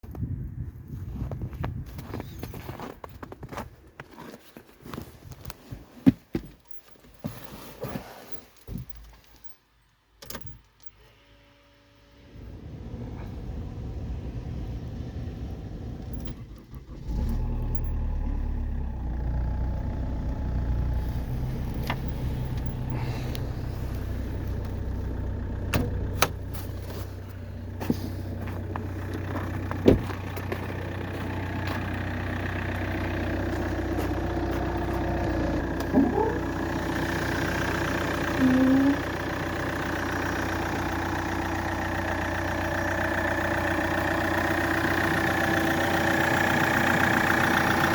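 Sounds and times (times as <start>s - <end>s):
diesel engine starting and idling: 10.3s - 47.9s.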